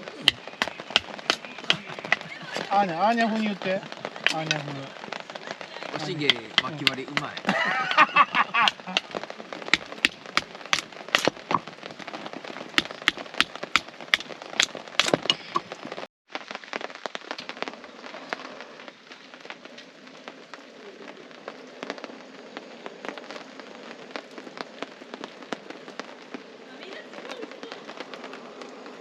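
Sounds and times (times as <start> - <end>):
fire hiss: 0.0 - 16.1
campfire crackling and popping: 0.0 - 29.0.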